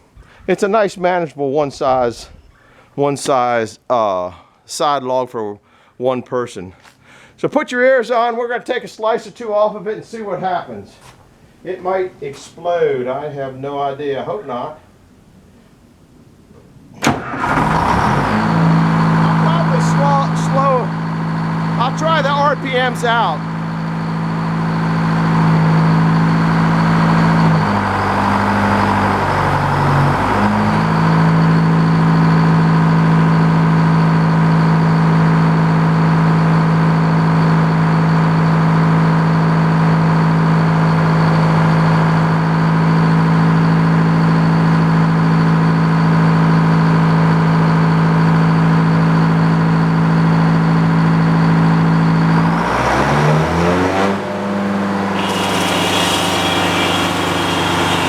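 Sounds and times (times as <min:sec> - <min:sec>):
sawmill engine running: 0:17.2 - 0:33.7, 0:54.9 - 0:58.0
saw blade cutting log: 0:55.1 - 0:58.0.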